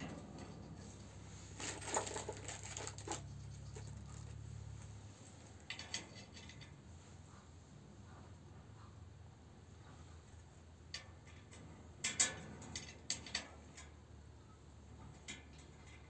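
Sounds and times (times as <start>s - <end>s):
metal stove parts clinking: 5.6s - 6.8s, 10.9s - 13.9s.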